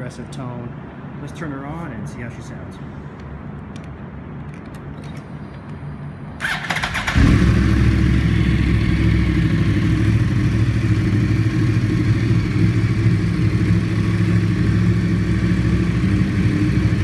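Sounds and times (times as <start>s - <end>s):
starter cranking: 6.4s - 12.0s
motorcycle engine idling: 6.4s - 17.0s.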